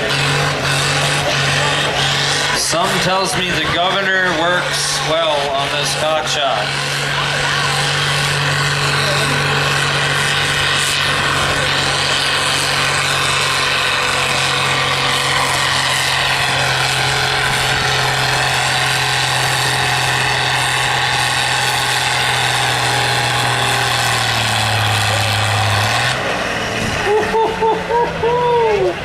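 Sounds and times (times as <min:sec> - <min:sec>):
tractor engine at full throttle: 0:00.0 - 0:29.0.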